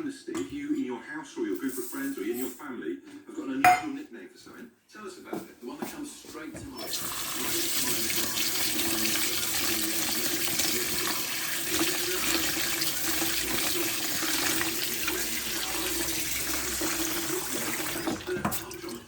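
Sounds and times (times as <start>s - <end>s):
tap water running into sink: 6.8s - 19.0s.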